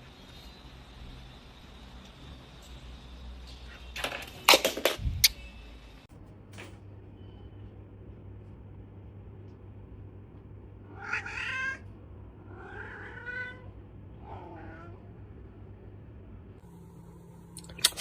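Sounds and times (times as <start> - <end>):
cat meowing: 10.9 - 15.2.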